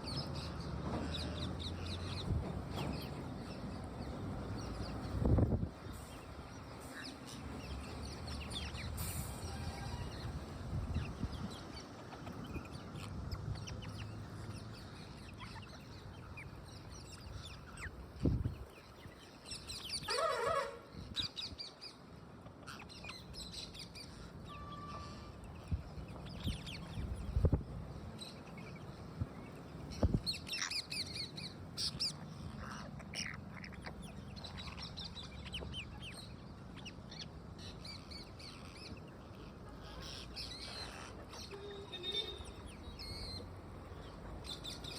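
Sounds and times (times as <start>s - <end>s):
parrot harsh call: 20.0s - 20.9s
parrot high chirps: 37.8s - 43.4s.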